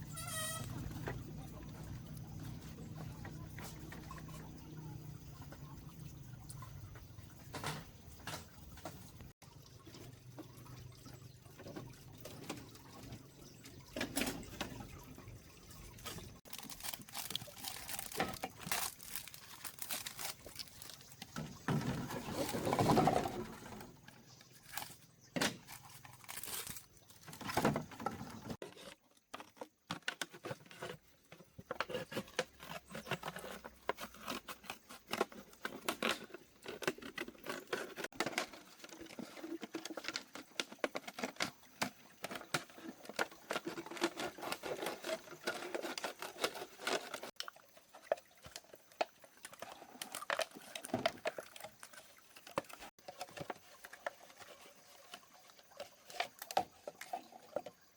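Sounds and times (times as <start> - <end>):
plastic bottles crinkling: 16.0 - 57.8.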